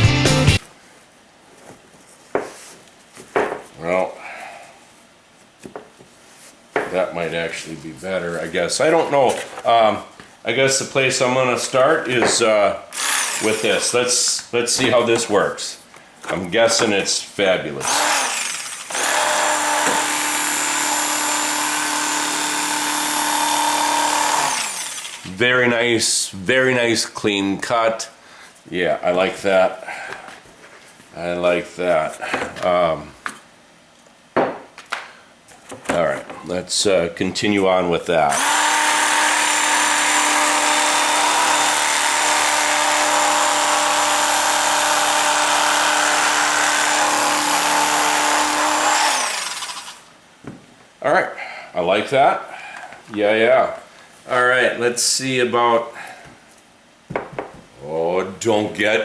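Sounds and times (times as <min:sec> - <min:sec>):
power tool cutting foam: 0:12.9 - 0:14.2, 0:17.8 - 0:25.4, 0:38.3 - 0:50.1.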